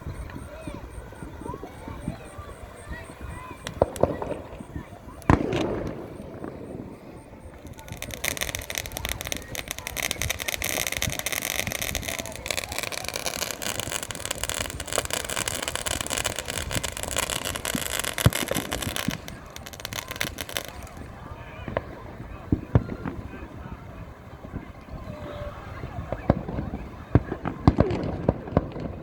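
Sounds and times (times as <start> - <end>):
fireworks crackling: 0.0 - 29.0
loud firework bang: 2.8 - 23.4, 26.1 - 29.0.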